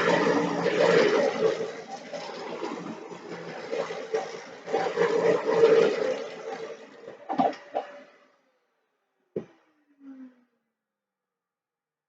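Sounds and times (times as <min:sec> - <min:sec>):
vacuum cleaner running: 0:00.0 - 0:07.2.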